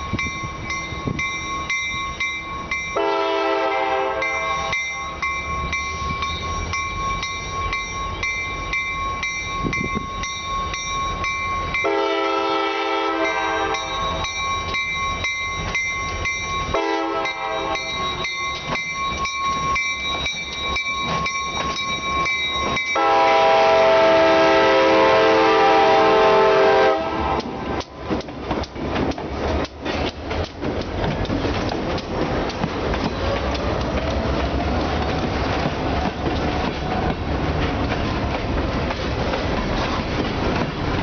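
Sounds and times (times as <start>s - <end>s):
locomotive air horn blasts: 3.0s - 4.8s, 11.8s - 14.0s, 16.7s - 18.0s, 23.0s - 27.8s
train wheels clacking over rail joints: 27.2s - 41.0s.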